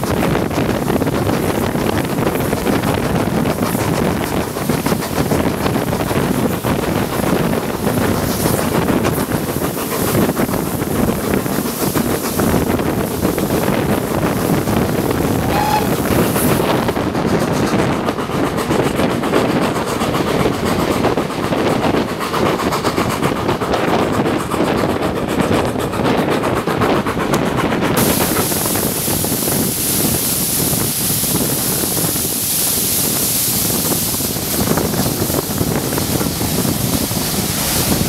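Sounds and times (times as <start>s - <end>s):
train wheels on rail: 0.0s - 38.0s
wind buffeting microphone: 0.0s - 38.0s.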